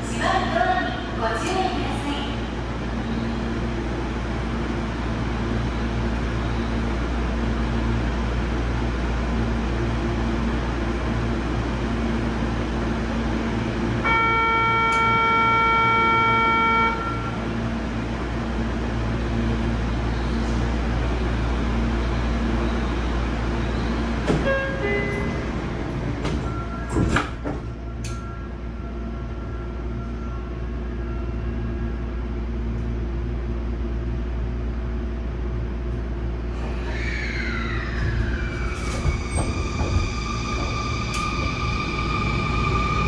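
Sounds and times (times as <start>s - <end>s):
train car hum: 0.0s - 43.0s.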